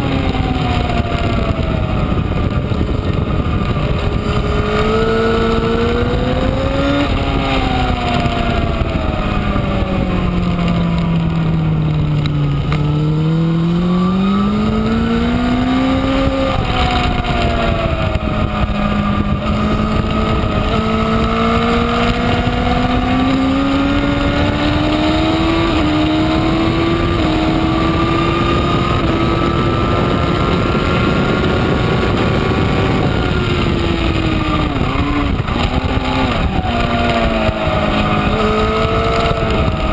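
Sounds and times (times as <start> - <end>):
motorcycle engine at speed: 0.0 - 39.9
wind noise: 0.0 - 39.9.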